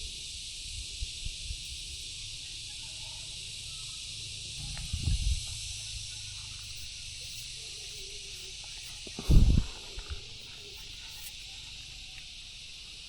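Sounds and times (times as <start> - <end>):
insects chorus: 0.0 - 13.0
dull low thumps: 4.6 - 6.5.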